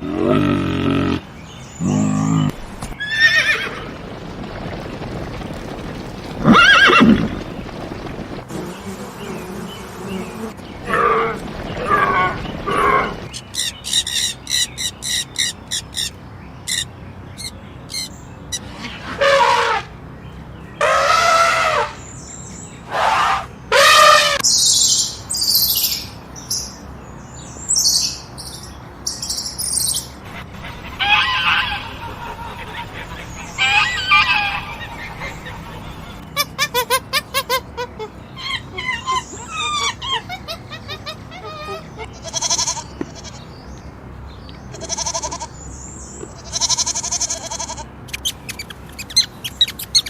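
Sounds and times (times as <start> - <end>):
bird chirping: 8.5 - 18.7, 24.4 - 37.4, 48.1 - 50.0
bird drawn-out calls: 29.7 - 43.5, 46.4 - 50.0.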